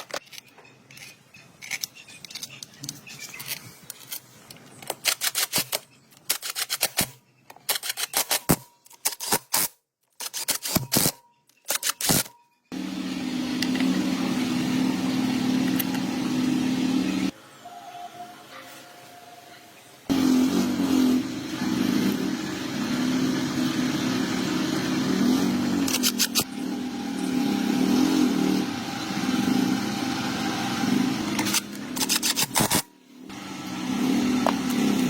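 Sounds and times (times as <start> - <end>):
small motorcycle engine revving: 12.7 - 17.4, 20.1 - 35.0.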